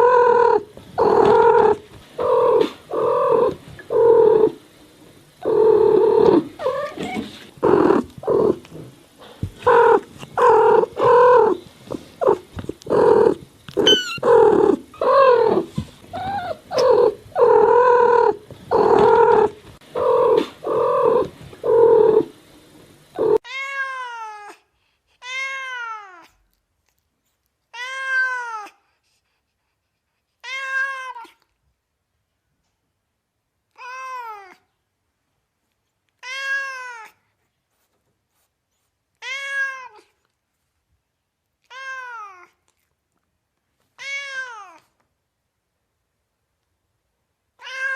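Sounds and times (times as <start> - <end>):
cats meowing: 0.0 - 4.6, 5.4 - 8.9, 9.6 - 22.3, 23.2 - 24.5, 44.0 - 44.9, 47.6 - 47.9
background hiss: 0.0 - 47.9.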